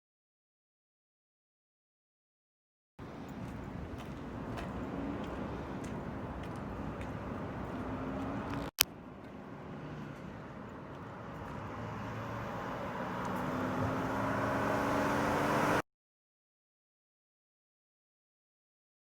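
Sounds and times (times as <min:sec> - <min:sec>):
motor vehicle approaching: 0:03.0 - 0:15.8.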